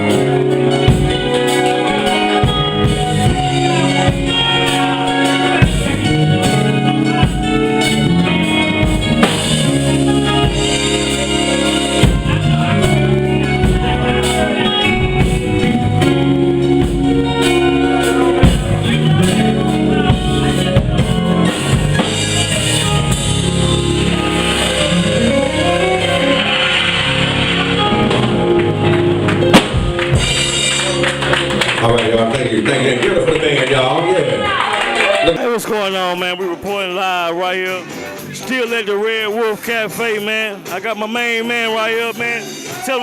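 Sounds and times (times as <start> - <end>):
drum kit: 0.0 - 33.4
blues band playing: 0.0 - 43.0
guitar: 0.0 - 43.0.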